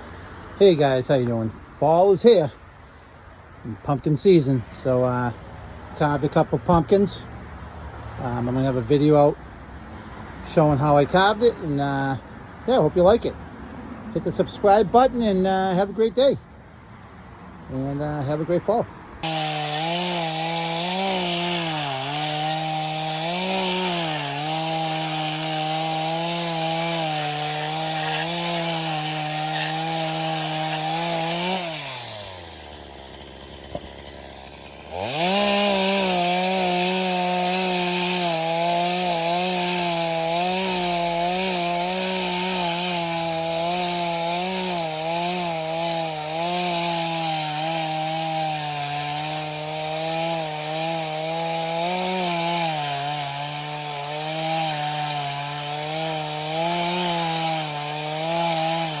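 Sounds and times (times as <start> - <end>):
chainsaw revving: 19.2 - 59.0.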